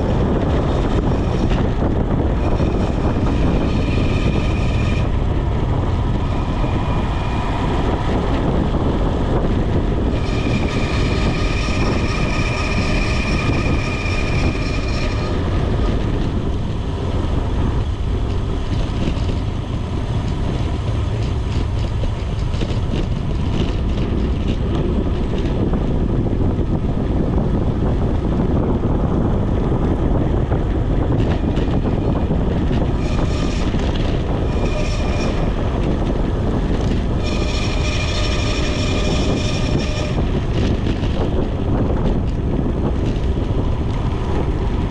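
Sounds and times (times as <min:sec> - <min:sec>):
wind rushing over microphone: 0:00.0 - 0:44.9
thin high squeal: 0:10.2 - 0:15.5, 0:34.4 - 0:35.6, 0:37.2 - 0:40.3.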